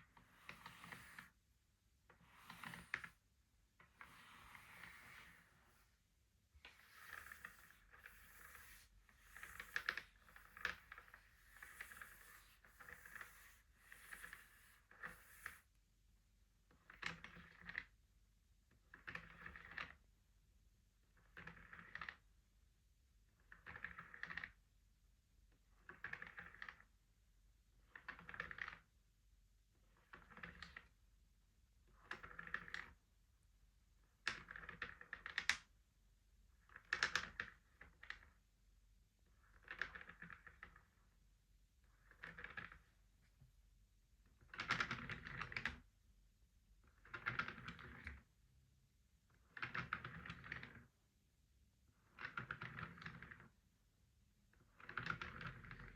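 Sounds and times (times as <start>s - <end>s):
rapid clicking on wooden game board: 0.2s - 1.3s, 2.2s - 3.2s, 6.6s - 15.6s, 16.7s - 18.0s, 18.9s - 20.0s, 21.2s - 22.3s, 23.4s - 24.6s, 25.8s - 26.9s, 27.9s - 29.0s, 29.9s - 31.0s, 32.0s - 33.0s, 34.0s - 35.7s, 36.6s - 38.4s, 39.4s - 41.0s, 41.9s - 43.0s, 44.3s - 45.9s, 46.8s - 48.3s, 49.3s - 50.9s, 52.0s - 53.6s, 54.5s - 55.9s.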